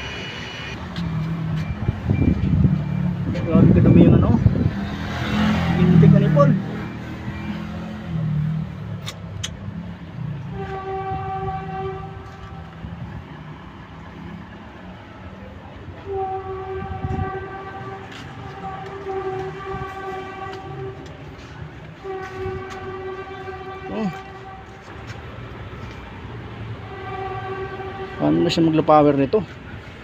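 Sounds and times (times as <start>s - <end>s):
steady horn-like tone: 10.3s - 13.2s, 16.0s - 28.9s.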